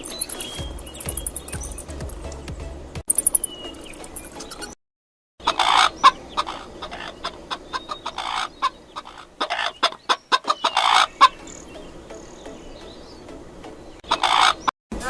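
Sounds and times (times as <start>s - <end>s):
chickens clucking: 5.4s - 12.4s, 14.0s - 14.7s.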